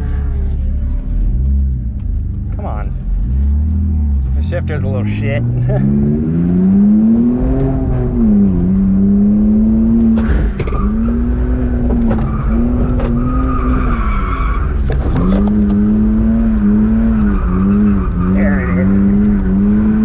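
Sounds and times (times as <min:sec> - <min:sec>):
car engine revving high: 0:03.2 - 0:20.0.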